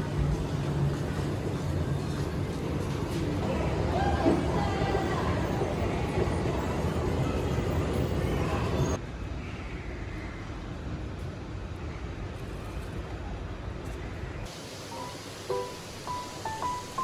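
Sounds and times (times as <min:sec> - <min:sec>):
dull hiss: 0:14.5 - 0:17.0.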